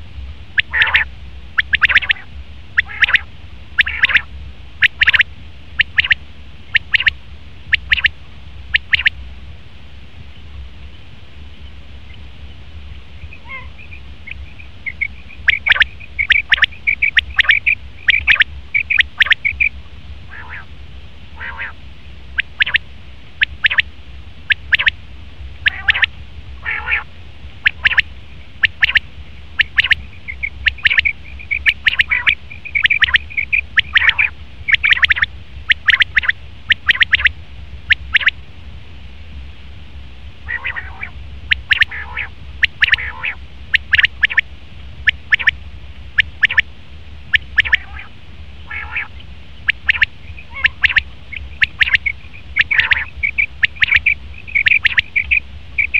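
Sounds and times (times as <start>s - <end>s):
steady low hum: 0.0s - 55.9s
quail calling: 0.6s - 8.1s, 8.7s - 9.2s, 13.2s - 19.7s, 20.3s - 20.7s, 21.4s - 21.8s, 22.4s - 22.8s, 23.4s - 23.9s, 24.5s - 25.0s, 25.6s - 37.3s, 37.9s - 38.4s, 40.5s - 44.4s, 45.0s - 45.6s, 46.2s - 46.7s, 47.3s - 55.9s.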